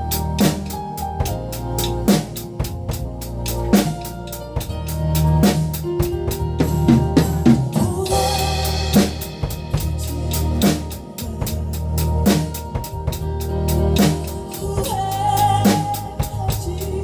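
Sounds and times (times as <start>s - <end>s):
bass line: 0.0s - 17.0s
held keyboard chords: 0.0s - 17.0s
hi-hat strokes: 0.0s - 17.0s
snare and bass drum hits: 0.3s - 11.4s
crash cymbal: 8.1s - 10.7s.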